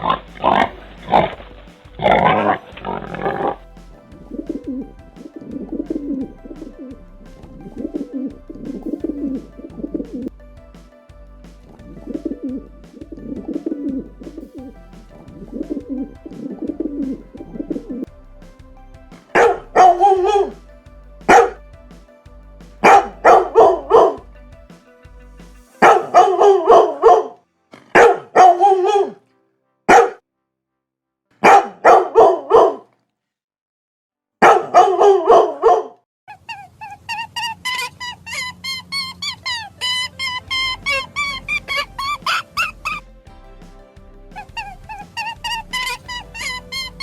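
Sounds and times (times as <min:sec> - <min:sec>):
faint background music: 0:00.0 - 0:30.1, 0:38.0 - 0:47.0
dog barking: 0:28.0 - 0:29.2, 0:29.9 - 0:30.2, 0:31.4 - 0:32.8, 0:34.4 - 0:36.0.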